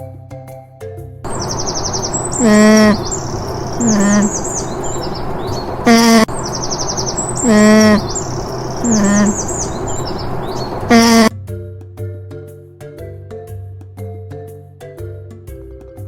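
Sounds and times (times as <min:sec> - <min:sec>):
background hiss: 0:01.3 - 0:11.3
high quick chirps: 0:01.3 - 0:11.3
parrot squawking: 0:01.3 - 0:11.3.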